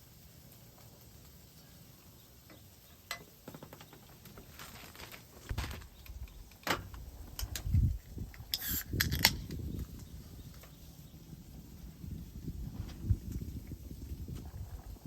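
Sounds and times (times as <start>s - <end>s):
objects handled clicks and thumps: 3.1s - 10.8s.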